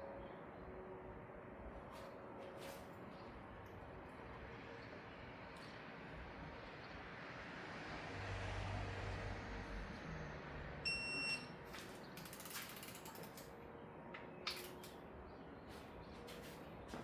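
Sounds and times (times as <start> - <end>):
short high beep: 10.9 - 11.5
ratchet wrench clicking: 12.2 - 13.5.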